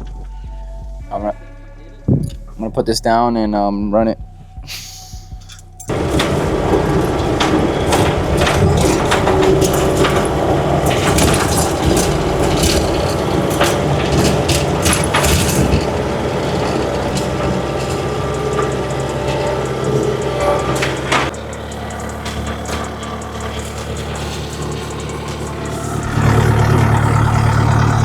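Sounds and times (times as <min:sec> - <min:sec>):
diesel engine running: 0:05.1 - 0:28.0
machine cracks and clanks: 0:05.4 - 0:28.0.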